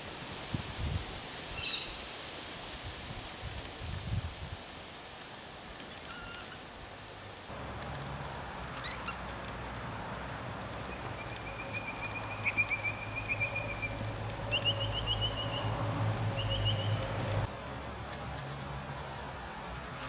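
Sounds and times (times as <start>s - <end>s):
high chirping bird trills: 8.7s - 9.5s, 10.7s - 17.5s.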